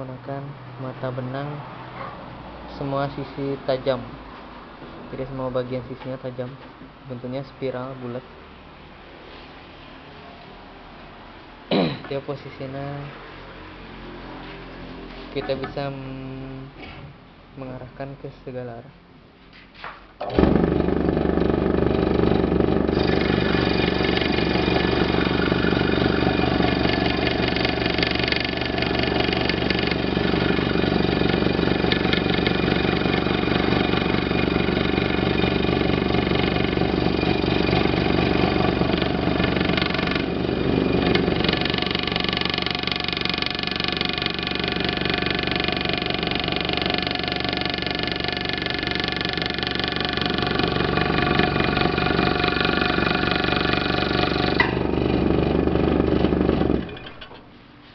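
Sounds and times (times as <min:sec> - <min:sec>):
scroll saw cutting wood: 0:20.4 - 0:57.0.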